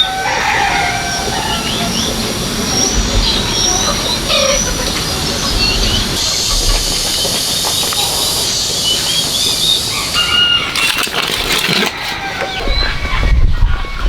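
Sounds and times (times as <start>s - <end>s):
loud hissing noise: 0.0s - 10.7s.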